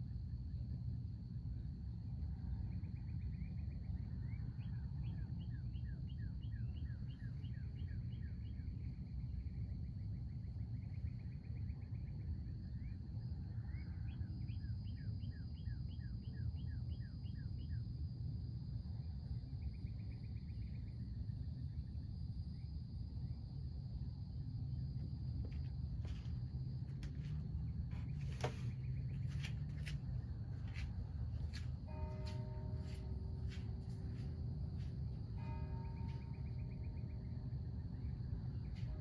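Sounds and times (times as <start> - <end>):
faint high hum: 0.0 - 39.0
songbird singing: 2.6 - 17.9, 24.1 - 39.0
steady low rumble: 18.4 - 39.0.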